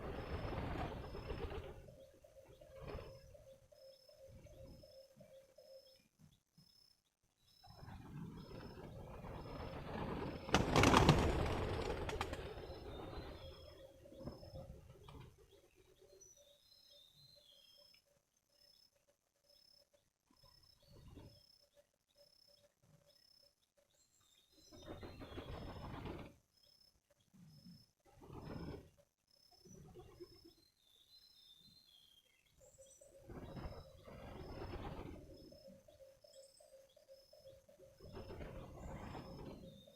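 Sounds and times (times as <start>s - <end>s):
small birds chirping: 0.0s - 39.9s
noisy rush with rapid flutter: 8.0s - 13.5s.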